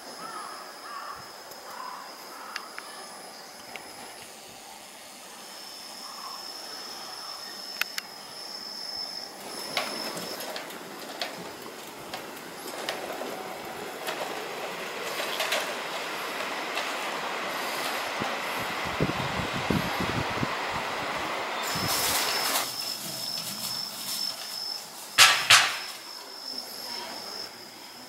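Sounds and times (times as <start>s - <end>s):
train wheels on rails: 5.4s - 26.6s
sharp clicks: 7.8s - 8.1s.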